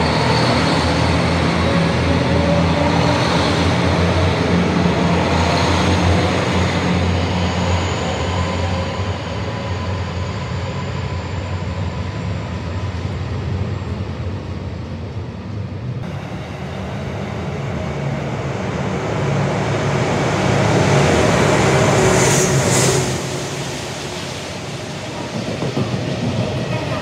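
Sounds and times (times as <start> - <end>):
diesel locomotive passing: 0.0 - 27.0
diesel train arriving: 0.0 - 27.0.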